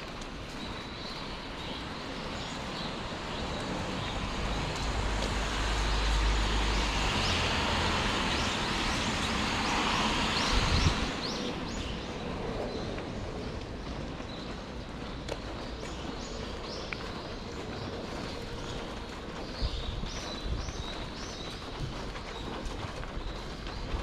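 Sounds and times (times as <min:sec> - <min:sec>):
tyres hissing on wet road: 0:00.2 - 0:12.8.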